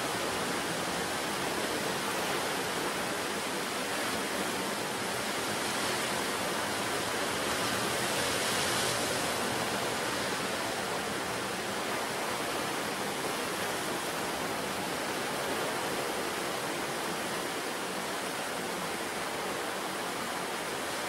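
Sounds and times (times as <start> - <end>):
waves breaking on rocks: 0.2 - 14.1.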